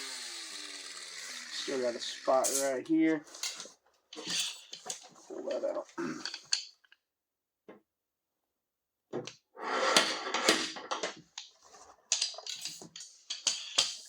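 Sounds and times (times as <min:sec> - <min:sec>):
metal scraping and clacking: 0:03.4 - 0:05.1, 0:12.1 - 0:14.0.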